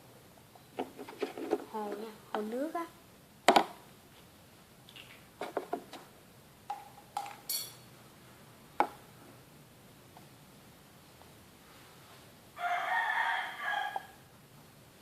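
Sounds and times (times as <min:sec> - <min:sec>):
short ringing clinks: 0:07.5 - 0:07.9.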